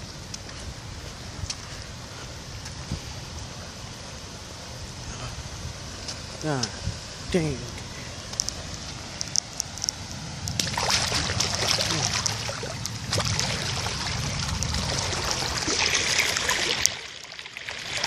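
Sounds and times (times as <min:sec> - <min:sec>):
floodwater rushing and trickling: 0:00.0 - 0:18.0
small clicks and splashes: 0:08.3 - 0:18.0.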